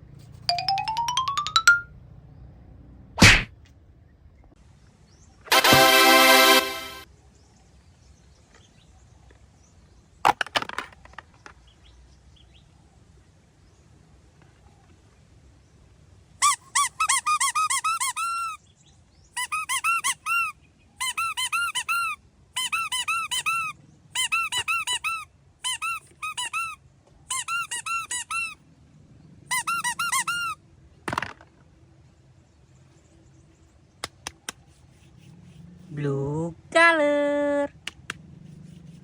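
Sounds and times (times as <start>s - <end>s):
short swish: 3.2s - 3.5s
high-pitched squeaks: 16.4s - 18.6s, 19.4s - 28.6s, 29.5s - 30.6s.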